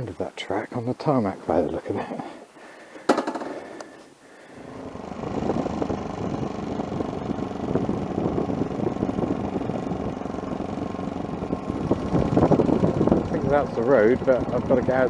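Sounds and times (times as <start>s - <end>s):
motorcycle engine riding off: 4.6s - 15.0s.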